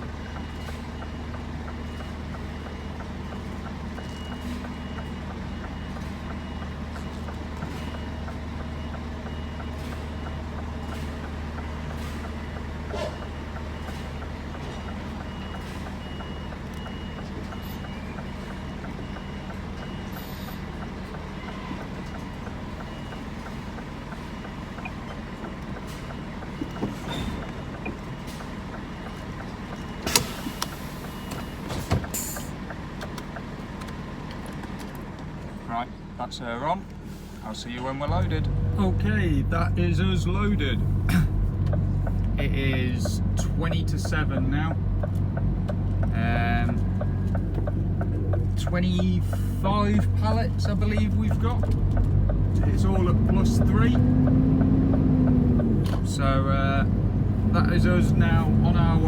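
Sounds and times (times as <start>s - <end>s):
reversing alarm beeping: 0.0s - 34.2s, 38.1s - 59.0s
lorry engine running: 36.9s - 59.0s.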